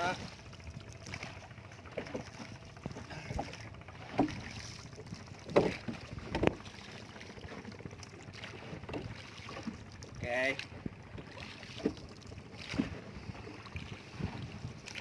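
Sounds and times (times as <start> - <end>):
water noise: 0.0 - 15.0
wind noise: 13.2 - 14.9.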